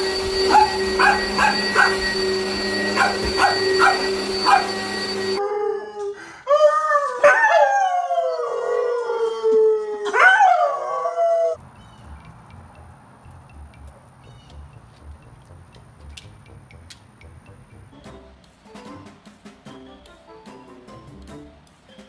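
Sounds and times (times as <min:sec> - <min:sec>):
steady hum: 0:00.0 - 0:05.4
dog howling: 0:00.0 - 0:11.6
dog yipping: 0:00.4 - 0:05.4.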